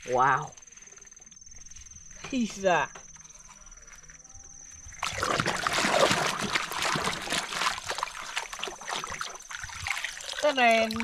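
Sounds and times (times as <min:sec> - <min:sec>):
water running and splashing: 0:05.0 - 0:11.0.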